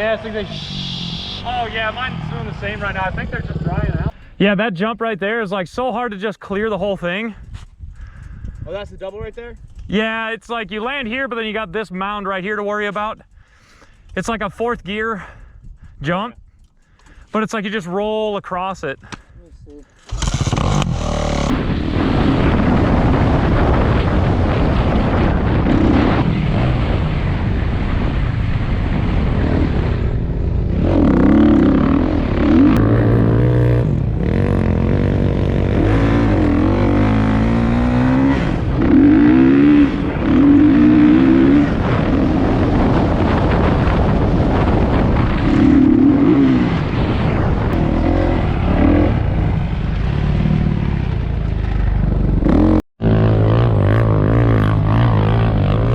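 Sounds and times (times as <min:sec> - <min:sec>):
off-road engine revving: 0:00.0 - 0:04.2, 0:20.1 - 0:21.7, 0:29.1 - 0:43.9, 0:44.6 - 0:55.9
rushing wind noise: 0:06.8 - 0:11.2, 0:13.3 - 0:17.3, 0:19.0 - 0:55.9.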